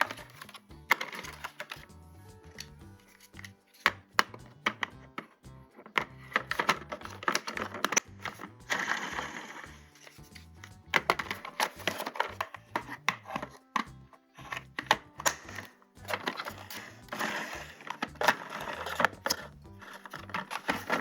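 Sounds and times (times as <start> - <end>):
background music: 0.0 - 21.0
plastic toys clicking and tapping: 0.0 - 21.0.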